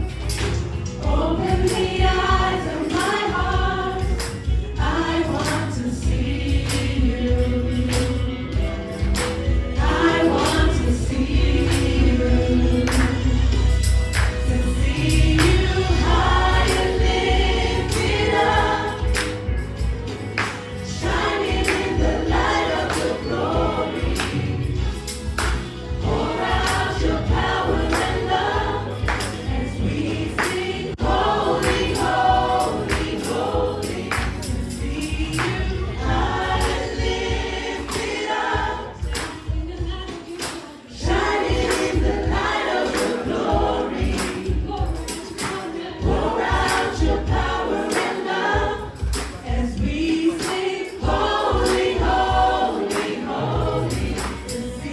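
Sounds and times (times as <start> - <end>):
band accompaniment: 0.0 - 40.4
choir singing gospel song: 0.0 - 54.9.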